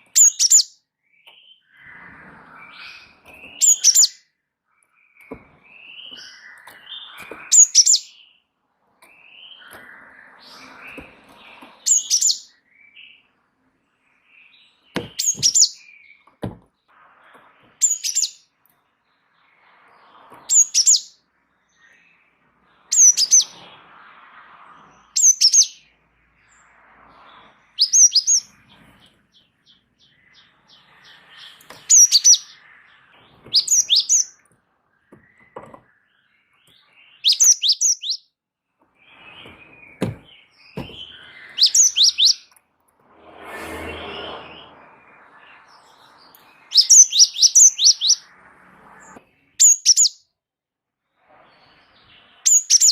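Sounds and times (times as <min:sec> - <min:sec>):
bird singing high notes: 0:29.3 - 0:34.4, 0:37.1 - 0:38.2, 0:39.1 - 0:42.5, 0:43.2 - 0:48.3.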